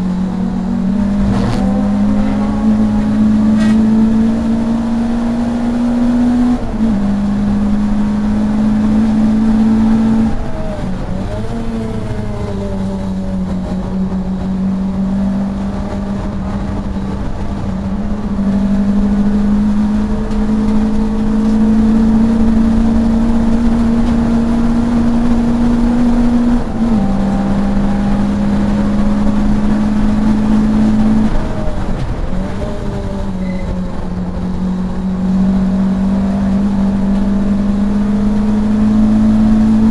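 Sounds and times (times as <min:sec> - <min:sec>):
racing car engine at speed: 0:00.0 - 0:39.9.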